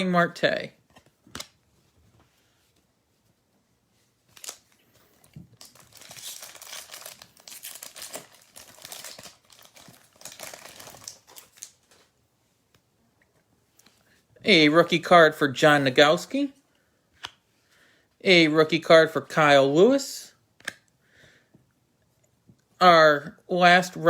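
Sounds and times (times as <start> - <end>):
plastic wrapper tearing and crinkling: 4.3 - 12.1.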